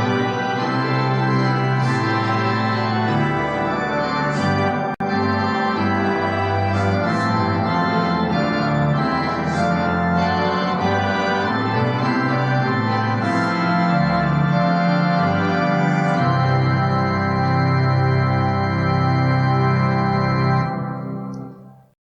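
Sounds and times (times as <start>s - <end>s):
church organ playing chords: 0.0s - 21.9s.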